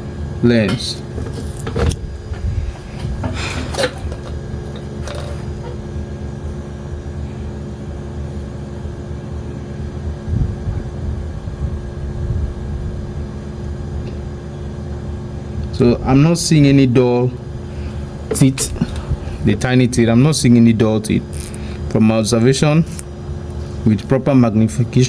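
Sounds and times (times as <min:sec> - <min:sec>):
low mechanical hum: 0:00.0 - 0:25.0
handling clicks and knocks: 0:00.6 - 0:05.8, 0:18.3 - 0:19.1.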